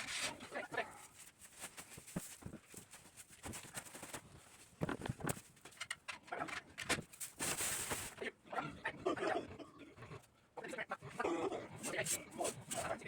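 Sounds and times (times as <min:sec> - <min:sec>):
knocks and rustling in pen: 0:00.0 - 0:08.2.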